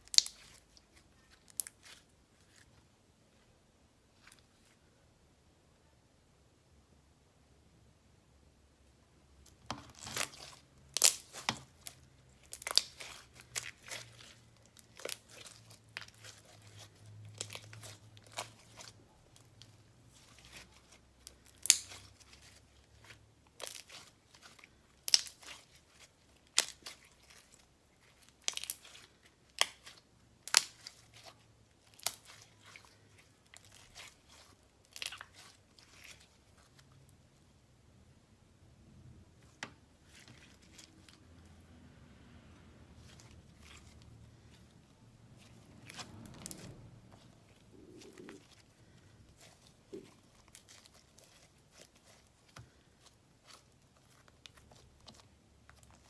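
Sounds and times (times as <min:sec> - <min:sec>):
slime popping and crackling: 0:00.0 - 0:02.1, 0:09.5 - 0:36.8, 0:45.4 - 0:56.0.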